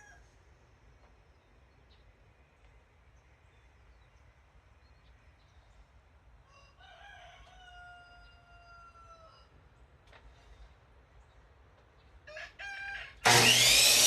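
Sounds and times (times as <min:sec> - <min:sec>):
rooster crowing: 0:06.5 - 0:09.4, 0:12.3 - 0:13.8.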